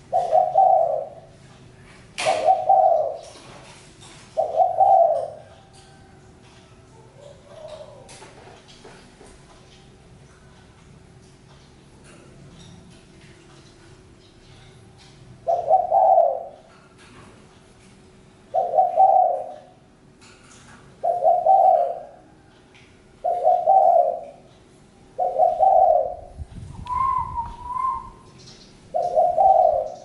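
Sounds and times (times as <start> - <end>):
dove cooing: 0.0 - 1.5, 2.2 - 5.8, 7.0 - 8.8, 15.4 - 16.7, 18.5 - 19.8, 21.0 - 22.5, 23.2 - 24.5, 25.1 - 30.0.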